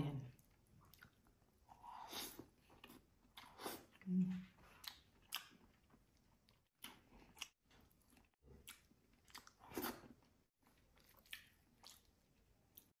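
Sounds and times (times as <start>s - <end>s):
chewing and wet mouth smacks: 0.3s - 1.6s, 4.6s - 12.9s.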